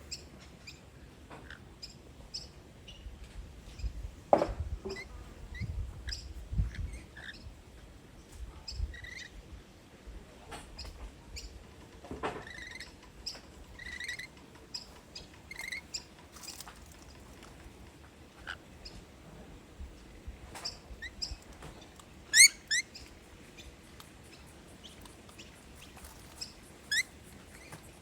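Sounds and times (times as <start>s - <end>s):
lorikeets chirping and chattering: 4.9s - 7.8s, 8.7s - 9.4s, 12.4s - 16.6s, 20.6s - 28.0s.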